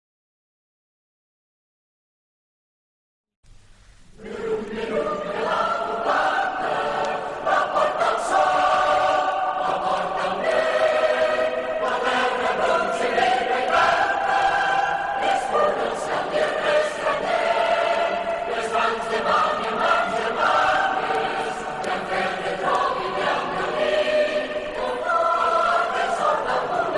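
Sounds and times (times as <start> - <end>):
choir singing: 4.2 - 26.9.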